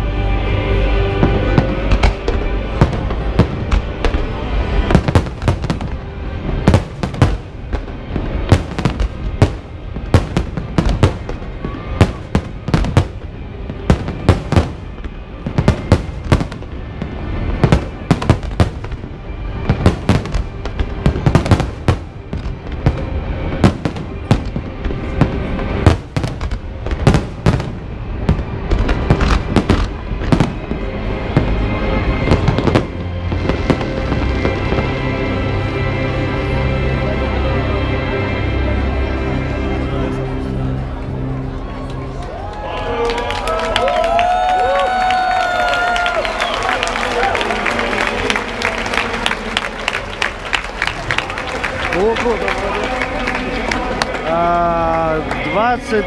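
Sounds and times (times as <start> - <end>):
music playing: 0.0 - 56.0
fireworks bangs and crackles: 0.9 - 35.2.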